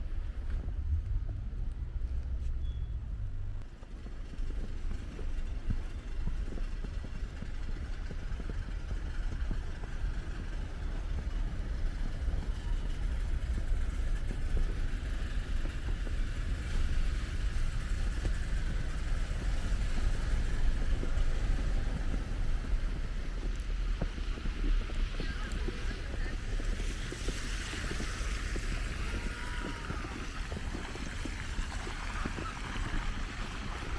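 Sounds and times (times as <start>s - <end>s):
wind buffeting microphone: 0.0s - 33.9s
street traffic hiss: 2.2s - 33.9s.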